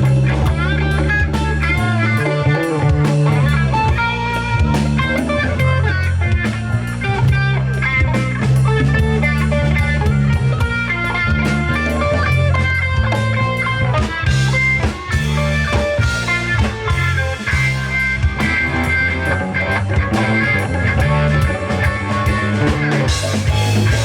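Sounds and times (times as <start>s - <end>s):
bass: 0.0s - 24.0s
drum kit: 0.0s - 24.0s
electric guitar lines: 0.0s - 24.0s.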